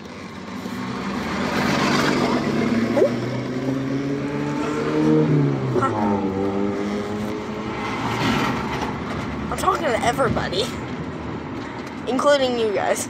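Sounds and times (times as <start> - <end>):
car engine revving while driving: 0.2 - 9.3.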